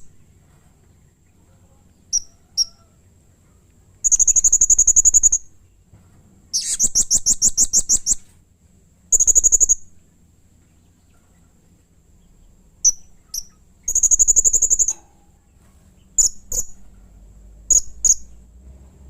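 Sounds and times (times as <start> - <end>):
parrot harsh chirping: 6.6 - 8.2, 12.8 - 14.9, 16.2 - 16.8, 17.7 - 18.3.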